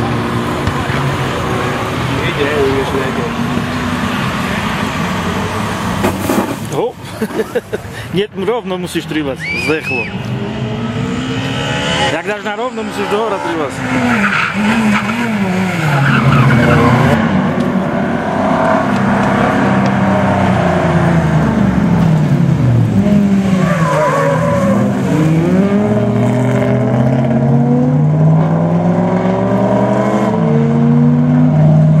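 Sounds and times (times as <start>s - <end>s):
rally car engine revving: 9.4s - 32.0s.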